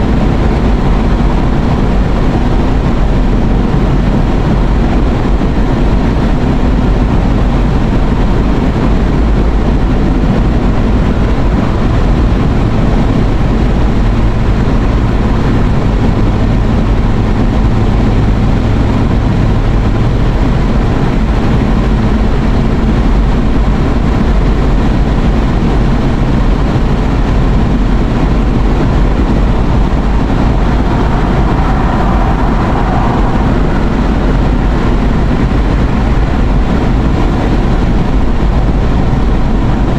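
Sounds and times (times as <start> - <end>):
low engine rumble: 0.0 - 39.9
road noise: 0.0 - 39.9.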